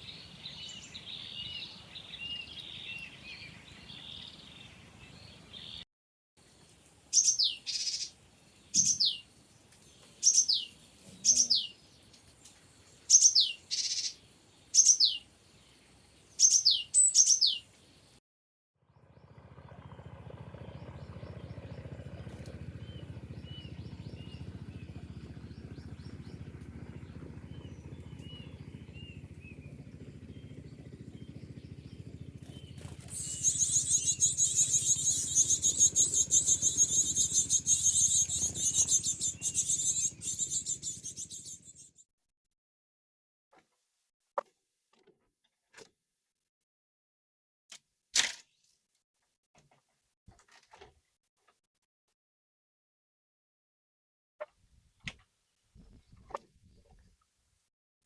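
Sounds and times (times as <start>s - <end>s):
birds chirping: 0.0s - 5.8s, 6.7s - 18.2s, 20.6s - 41.9s
loud sharp downsweeping bird calls: 0.0s - 5.8s, 7.1s - 9.3s, 10.2s - 11.8s, 13.0s - 15.3s, 16.4s - 17.7s, 27.0s - 41.9s.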